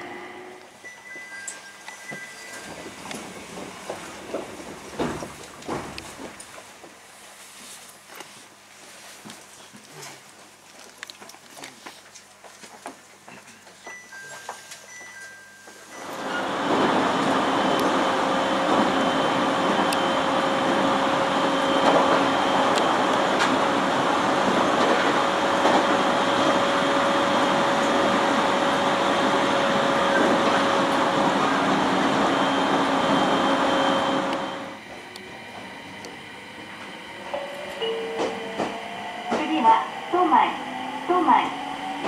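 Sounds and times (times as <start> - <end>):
train wheels rumbling: 2.1 - 7.0, 16.0 - 42.0.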